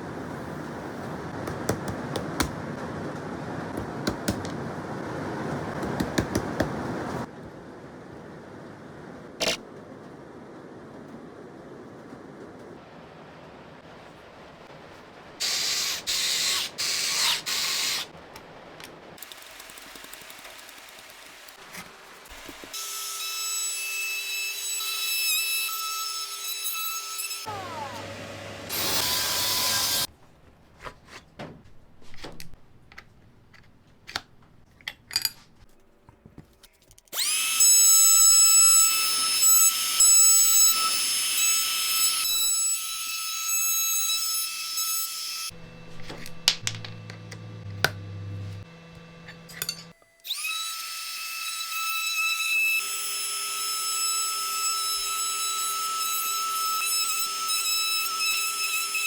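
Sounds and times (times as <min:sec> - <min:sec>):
power tool whining: 0:27.4 - 0:30.1.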